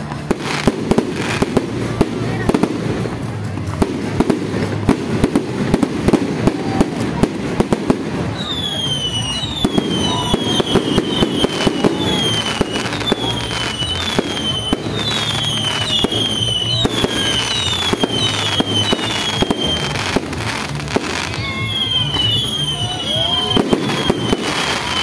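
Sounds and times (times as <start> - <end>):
fireworks bangs and crackles: 0.0 - 25.0
firework whistles falling in pitch: 8.3 - 25.0.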